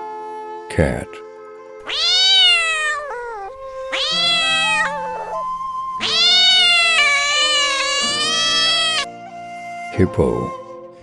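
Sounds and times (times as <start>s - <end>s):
cat meowing: 1.8s - 9.1s.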